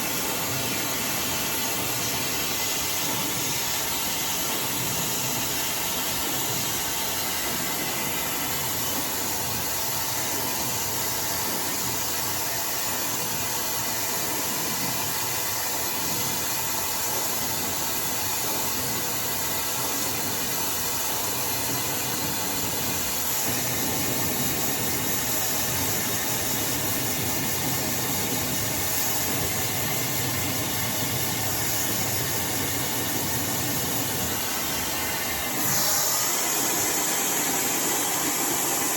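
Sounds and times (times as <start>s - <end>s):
hair dryer blowing: 19.8s - 38.9s.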